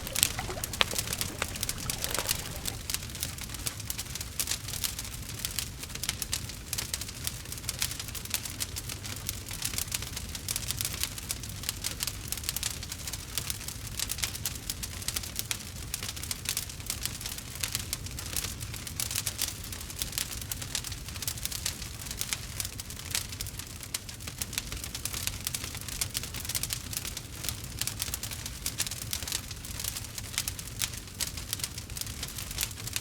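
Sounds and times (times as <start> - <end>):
wood fire crackling: 0.0 - 2.8.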